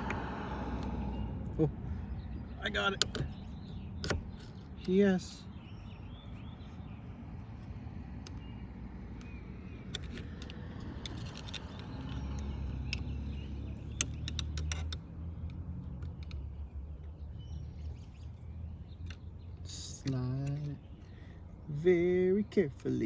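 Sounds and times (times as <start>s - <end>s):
clicks and taps of parts handled: 9.1s - 13.1s, 13.9s - 17.2s, 19.0s - 20.8s.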